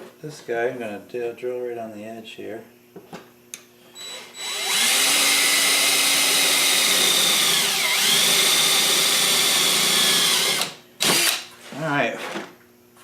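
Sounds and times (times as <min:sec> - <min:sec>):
electric drill boring: 0:04.0 - 0:11.5.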